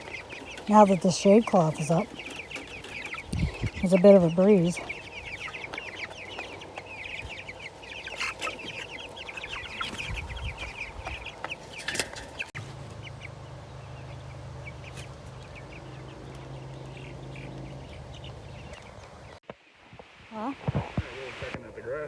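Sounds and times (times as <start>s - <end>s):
chickens cheeping and clucking: 0.0s - 19.4s
steady low hum: 12.6s - 19.4s.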